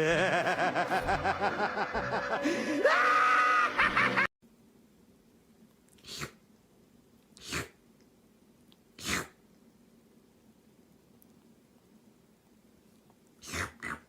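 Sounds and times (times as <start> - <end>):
cat sneezing: 6.0 - 6.4, 7.4 - 7.8, 9.0 - 9.4.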